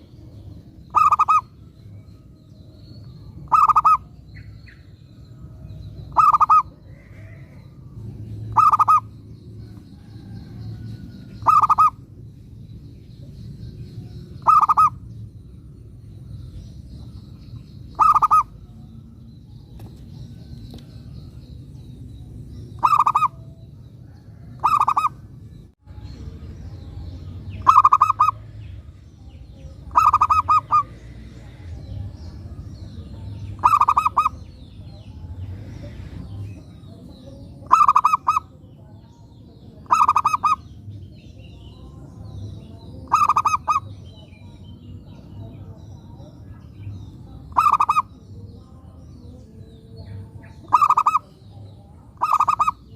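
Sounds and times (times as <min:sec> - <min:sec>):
small birds chirping: 0:00.0 - 0:52.9
dove cooing: 0:00.9 - 0:01.5, 0:03.4 - 0:04.1, 0:06.1 - 0:07.6, 0:08.5 - 0:09.1, 0:11.4 - 0:12.0, 0:14.4 - 0:15.0, 0:18.0 - 0:18.6, 0:22.8 - 0:23.4, 0:24.0 - 0:25.2, 0:27.6 - 0:28.4, 0:29.9 - 0:31.0, 0:33.6 - 0:34.4, 0:37.6 - 0:38.5, 0:39.8 - 0:40.7, 0:43.1 - 0:44.0, 0:50.6 - 0:51.3, 0:52.2 - 0:52.9.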